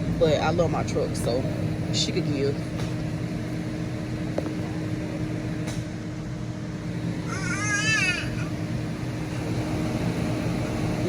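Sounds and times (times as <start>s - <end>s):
young child squealing: 7.3s - 8.6s.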